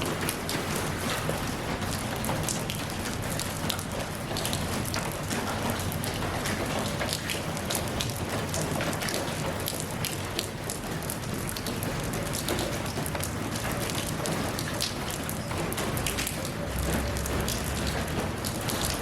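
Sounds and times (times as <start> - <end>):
rain drops ticking: 0.0 - 19.0.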